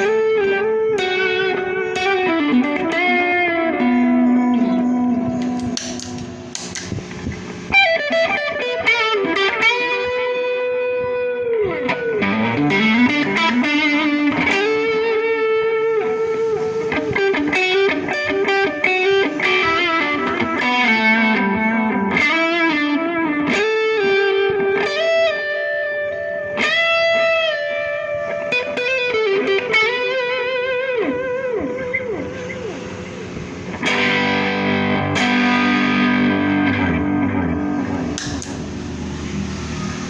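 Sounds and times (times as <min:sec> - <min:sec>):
electric guitar lead line: 0:00.0 - 0:40.0.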